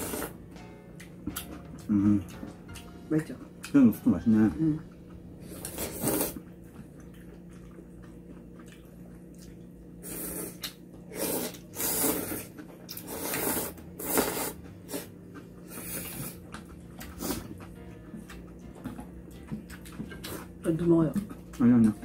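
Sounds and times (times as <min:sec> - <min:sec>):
people slurping noodles: 0:00.0 - 0:00.4, 0:05.4 - 0:06.6, 0:10.0 - 0:17.6.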